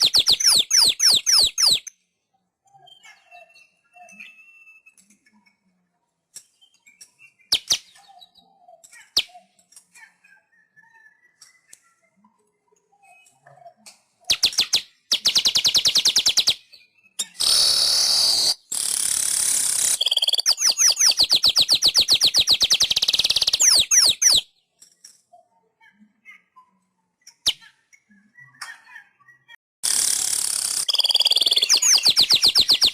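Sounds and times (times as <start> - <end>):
weaver bird singing trills: 0.0 - 1.9, 19.5 - 24.4, 29.9 - 32.9
faint bird chirps: 0.0 - 32.9
harsh wheezy bird buzzes: 17.4 - 20.2.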